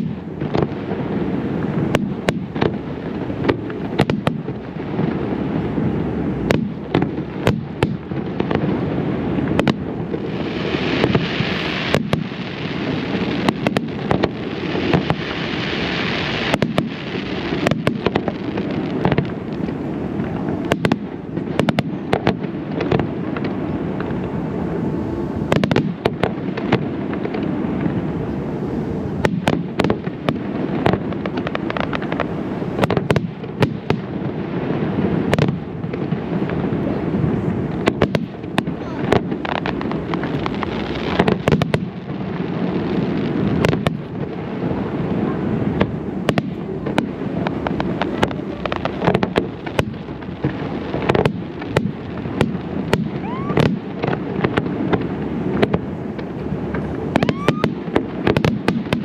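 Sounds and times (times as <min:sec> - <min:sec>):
fireworks booms and bursts: 0:00.0 - 0:59.0
fireworks hissing crackle: 0:00.0 - 0:59.0
rumbling background: 0:43.5 - 0:59.0.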